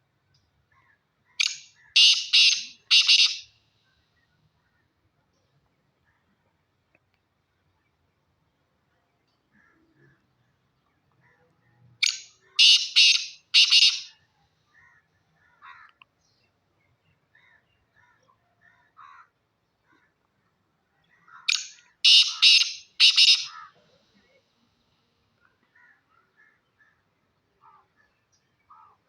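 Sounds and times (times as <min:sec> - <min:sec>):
francolin calling: 0:01.4 - 0:03.5, 0:12.0 - 0:14.2, 0:21.5 - 0:23.8.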